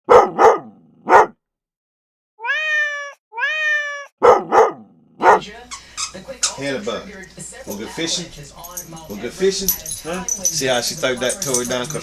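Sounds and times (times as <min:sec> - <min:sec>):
dog barking: 0:00.0 - 0:01.4, 0:04.1 - 0:05.5
cat meowing: 0:02.4 - 0:04.2.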